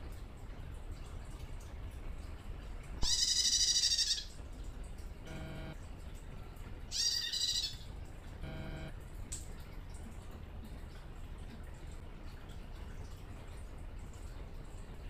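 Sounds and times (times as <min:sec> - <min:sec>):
harsh buzzy bird calls: 0:03.0 - 0:04.4, 0:06.9 - 0:08.9.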